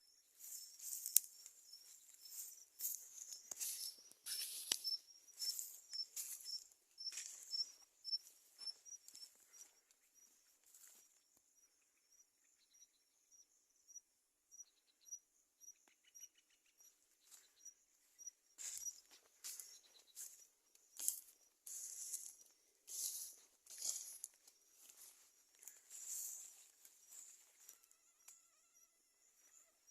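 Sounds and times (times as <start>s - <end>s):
high chirping: 0.0s - 10.4s.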